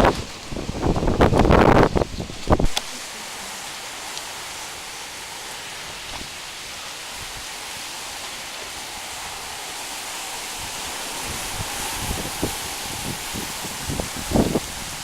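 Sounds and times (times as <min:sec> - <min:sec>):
raindrops tapping close by: 0:00.0 - 0:15.0
steady rain hiss: 0:00.0 - 0:15.0.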